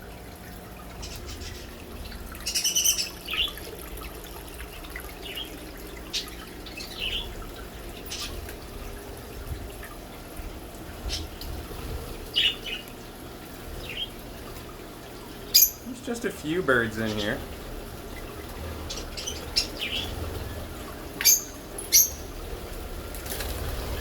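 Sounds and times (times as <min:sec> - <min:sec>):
birds chirping and calling: 0:00.8 - 0:04.1, 0:04.8 - 0:08.8, 0:11.0 - 0:11.5, 0:12.2 - 0:13.0, 0:13.8 - 0:14.2, 0:15.4 - 0:17.4, 0:18.1 - 0:22.4.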